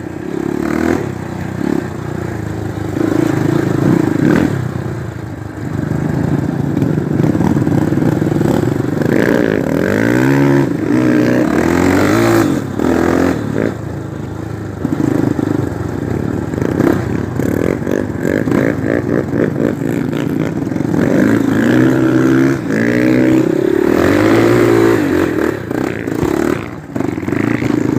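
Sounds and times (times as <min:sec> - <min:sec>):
motorcycle engine revving: 0:00.0 - 0:27.9.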